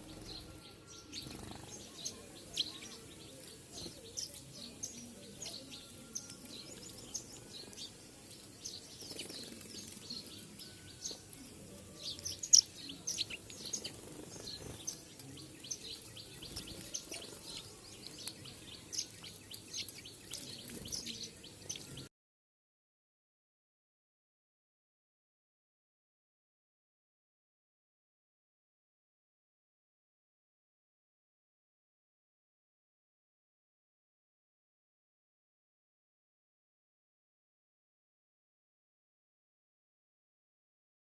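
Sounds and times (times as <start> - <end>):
small birds chirping: 0.0 - 22.1.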